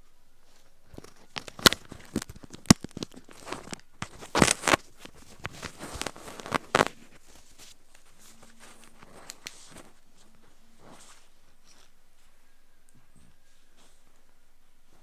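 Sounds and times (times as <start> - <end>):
ear pick scraping earwax: 0.7 - 12.0.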